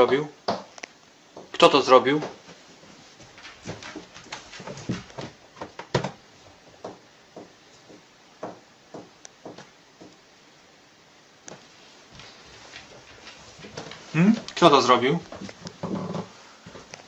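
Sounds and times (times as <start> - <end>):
short knocks and taps: 6.8 - 10.2.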